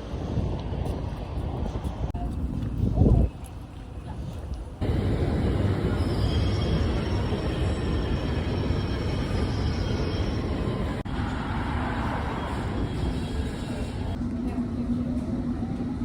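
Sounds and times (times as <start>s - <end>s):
train wheels rumbling on rails: 4.5s - 16.0s.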